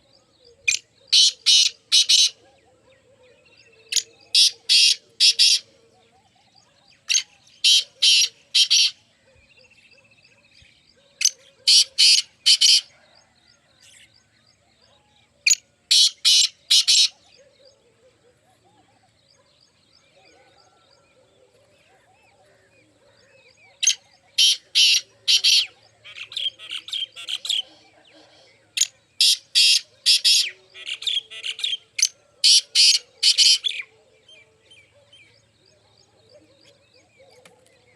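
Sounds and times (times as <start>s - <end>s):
partridge calling harsh notes: 0.7s - 2.4s, 4.4s - 5.6s, 7.1s - 9.0s, 11.7s - 12.8s, 15.9s - 17.1s, 23.8s - 27.6s, 28.8s - 33.8s.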